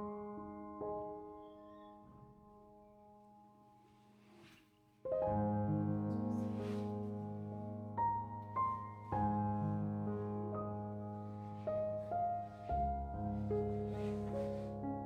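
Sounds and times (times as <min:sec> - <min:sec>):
slow soft piano music: 0:00.0 - 0:15.0.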